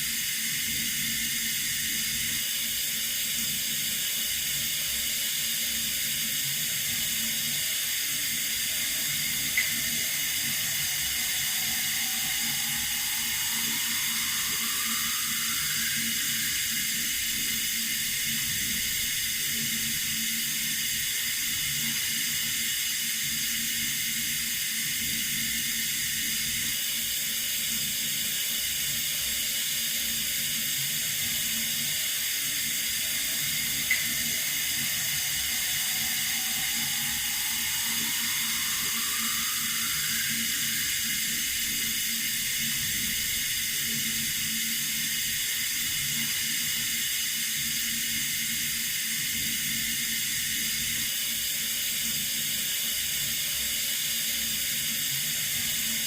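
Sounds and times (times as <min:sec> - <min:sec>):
water running from a tap: 0:00.1 - 0:26.8, 0:30.4 - 0:51.5
faint rising tone: 0:07.6 - 0:19.0, 0:31.8 - 0:43.4.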